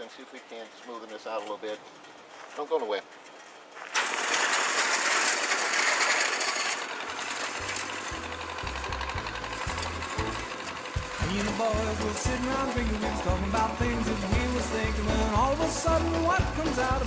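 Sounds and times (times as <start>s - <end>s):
loud dense rattling: 3.9s - 17.0s
low bass line of a song: 8.2s - 17.0s.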